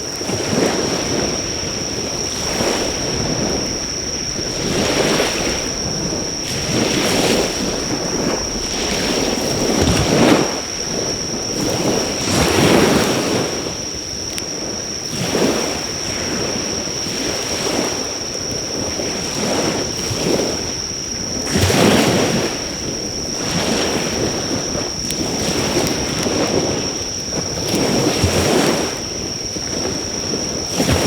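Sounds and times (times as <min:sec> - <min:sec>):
insects chirring: 0:00.0 - 0:31.0
sea waves washing ashore: 0:00.0 - 0:31.0
faint fire crackle: 0:01.0 - 0:15.1, 0:24.0 - 0:27.8.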